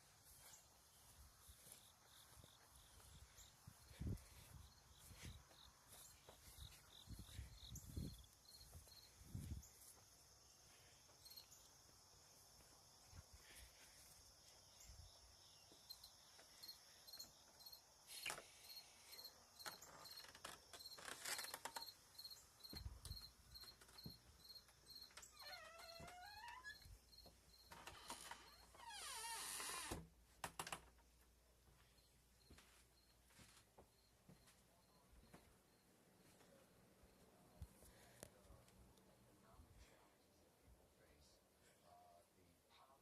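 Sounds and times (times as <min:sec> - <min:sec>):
crickets chirping: 0:00.0 - 0:40.4
insects trilling: 0:00.2 - 0:30.0.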